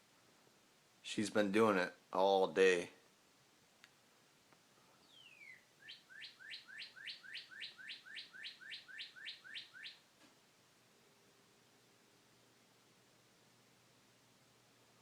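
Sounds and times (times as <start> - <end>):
bird singing: 5.0 - 10.1.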